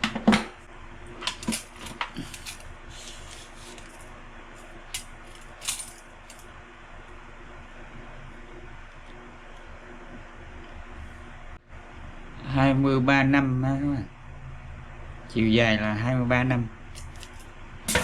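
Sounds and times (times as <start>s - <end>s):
small metal parts clinking: 1.4s - 2.7s, 5.0s - 6.4s.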